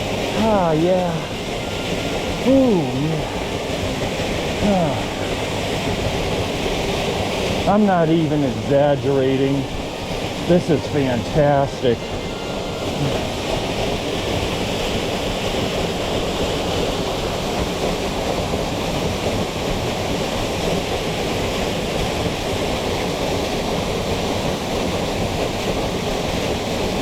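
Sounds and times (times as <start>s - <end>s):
waterfall rushing over rock: 0.0s - 27.0s.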